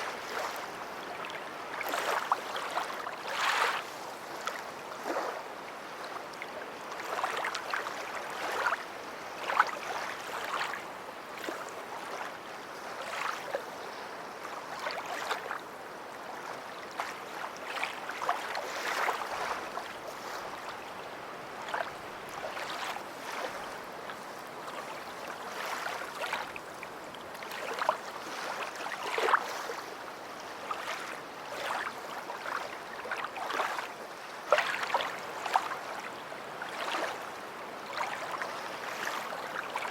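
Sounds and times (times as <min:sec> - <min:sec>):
small waves lapping on beach: 0:00.0 - 0:39.9
short water splashes: 0:17.0 - 0:20.7, 0:21.6 - 0:23.8, 0:30.6 - 0:36.0.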